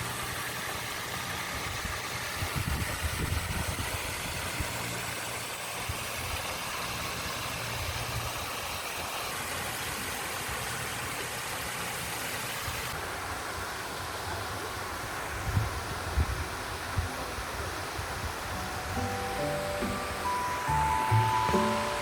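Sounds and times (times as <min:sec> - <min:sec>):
background hiss: 0:18.2 - 0:22.0.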